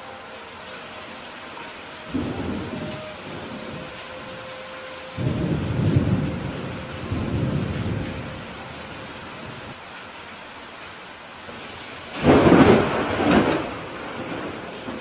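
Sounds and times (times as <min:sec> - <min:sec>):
steady rain falling: 0:00.0 - 0:15.0
thunder rumbling: 0:02.1 - 0:09.8, 0:11.5 - 0:15.0.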